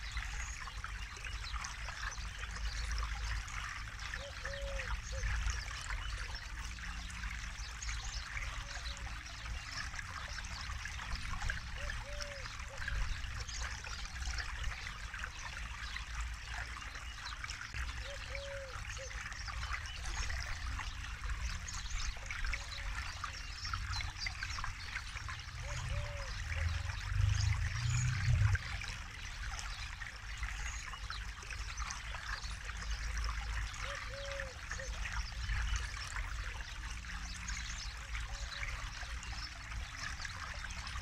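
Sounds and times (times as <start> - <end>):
low rumble: 26.6 - 28.8.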